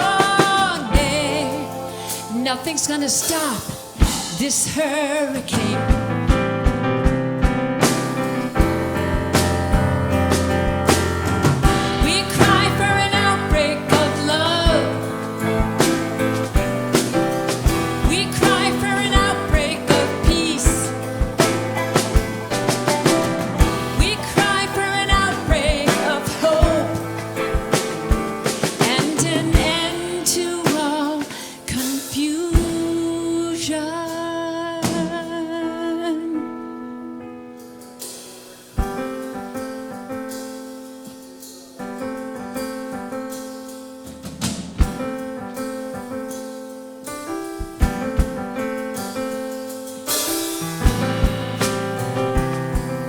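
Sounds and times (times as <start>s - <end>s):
live band playing rock: 0.0s - 33.2s, 37.6s - 53.0s
keyboard chords: 0.0s - 33.5s, 36.2s - 53.0s
drum hits: 5.6s - 31.5s, 50.1s - 53.0s.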